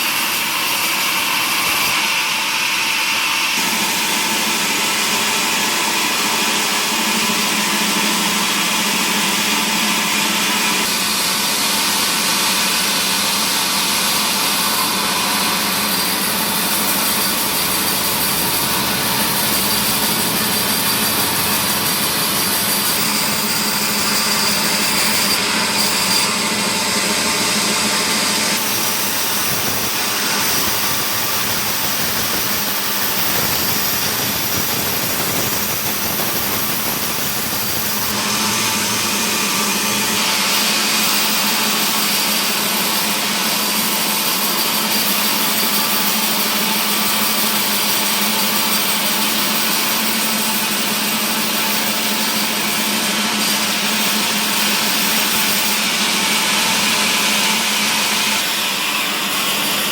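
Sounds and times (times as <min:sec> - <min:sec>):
saw machinery whining: 0:00.0 - 0:59.9.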